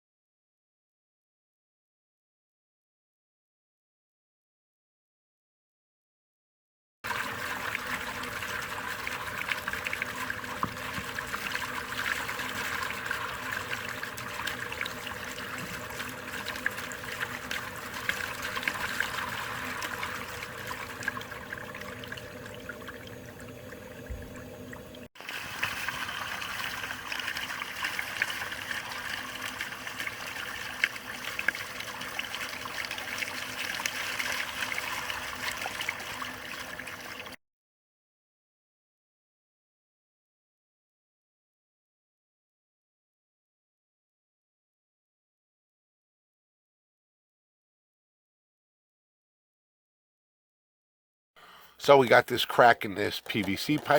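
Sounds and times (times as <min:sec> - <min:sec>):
trickle of running water: 0:07.1 - 0:37.4, 0:52.5 - 0:53.9.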